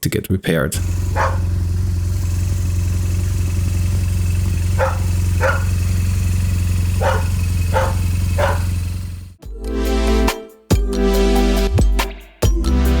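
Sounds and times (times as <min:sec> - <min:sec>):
low engine hum: 0:00.8 - 0:09.4
dog barking: 0:01.1 - 0:01.6, 0:04.7 - 0:05.9, 0:06.9 - 0:08.9.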